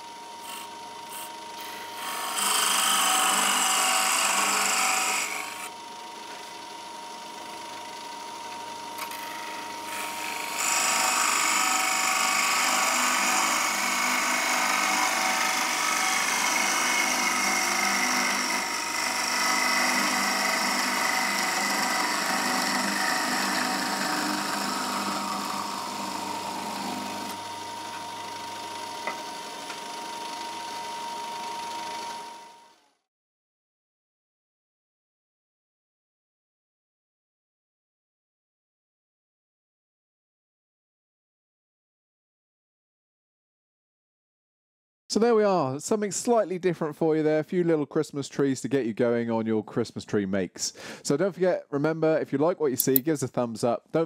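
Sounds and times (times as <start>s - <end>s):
lathe motor whine: 0.0s - 33.0s
tool rasping on wood: 0.5s - 5.7s, 10.0s - 27.4s.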